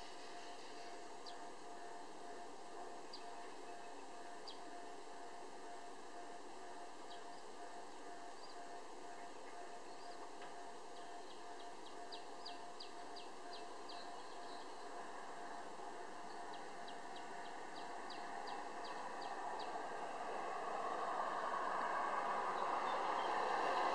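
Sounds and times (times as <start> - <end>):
faint steady hum: 0.0 - 23.9
approaching vehicle: 18.0 - 23.9.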